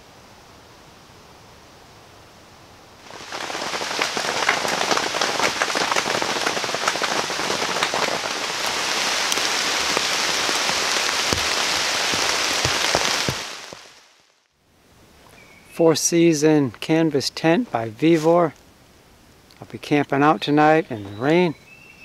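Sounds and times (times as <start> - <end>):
heavy rain falling: 3.0 - 14.4.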